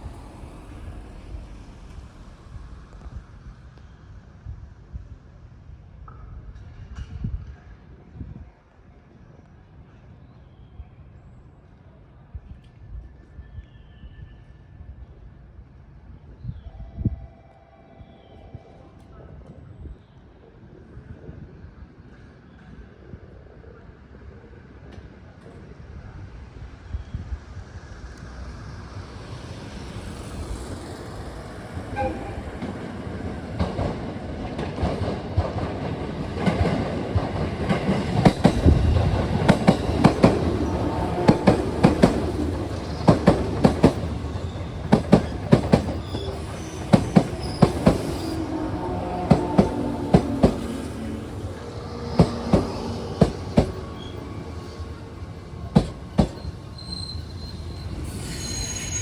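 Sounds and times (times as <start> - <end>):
train wheel and brake squeal: 13.0 - 14.9, 29.3 - 33.1, 37.6 - 59.0
train wheels clacking over rail joints: 33.5 - 48.2, 51.6 - 54.2, 54.8 - 56.9.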